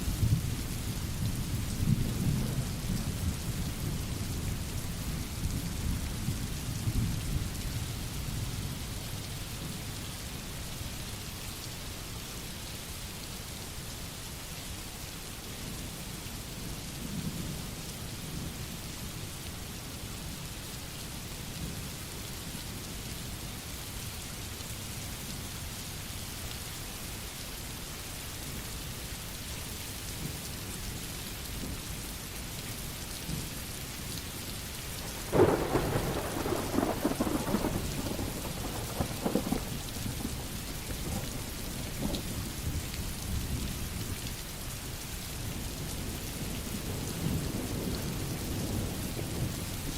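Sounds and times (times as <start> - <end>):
steady rain falling: 0.0 - 49.9
thunderclap rumbling: 35.1 - 41.4.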